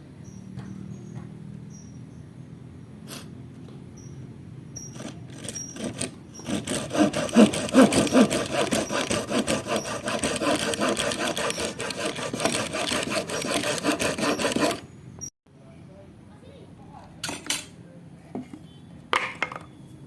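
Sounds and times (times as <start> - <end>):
hand saw cutting wood: 4.9 - 14.9.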